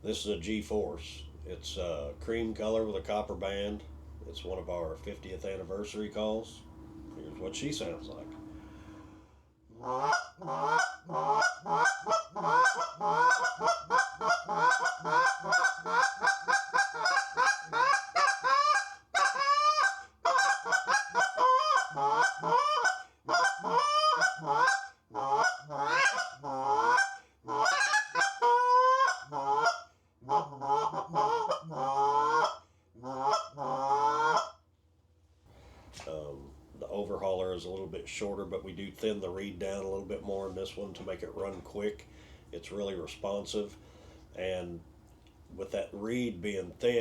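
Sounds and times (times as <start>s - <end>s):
goose call honks and clucks: 9.7s - 34.6s.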